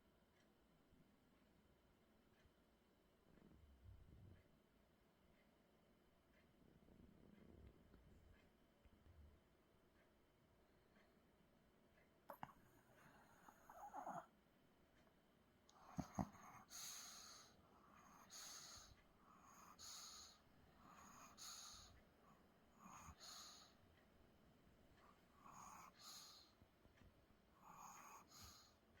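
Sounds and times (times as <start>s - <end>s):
puppy snoring softly: 12.3s - 14.4s, 15.7s - 23.9s, 24.9s - 26.6s, 27.5s - 29.0s.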